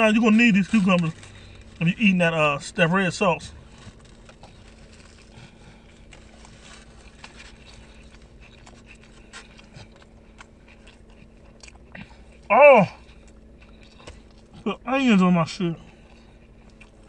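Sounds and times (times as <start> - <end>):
steady low hum: 0.0 - 17.0
person chewing: 3.6 - 14.8, 15.8 - 17.0.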